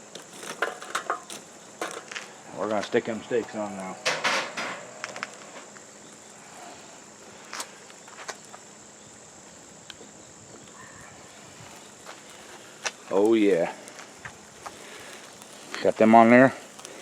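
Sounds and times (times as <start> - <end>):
low hiss: 0.0 - 17.0
clicks and knocks on grill: 0.1 - 2.8, 4.0 - 5.8.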